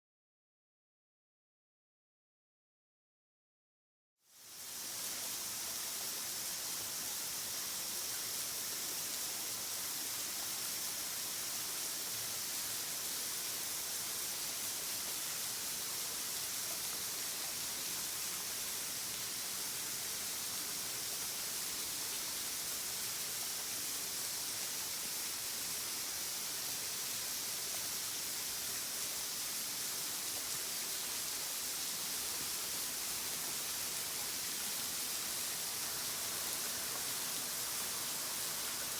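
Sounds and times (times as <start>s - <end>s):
waterfall rushing: 32.5s - 38.9s.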